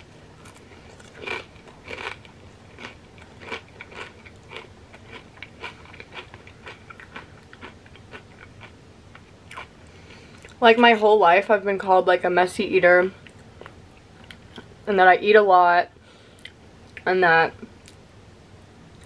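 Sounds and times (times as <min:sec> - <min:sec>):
person chewing crunchy chip: 0:00.4 - 0:10.6.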